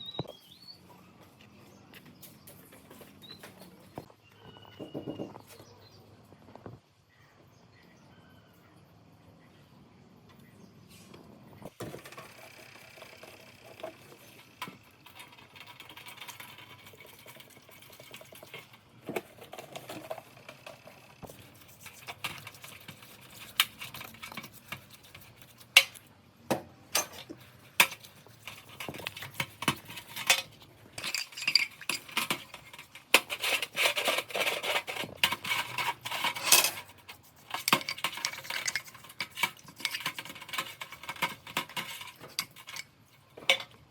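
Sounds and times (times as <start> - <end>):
metal tools clinking: 26.9 - 43.8
brisk scraping: 27.2 - 43.5.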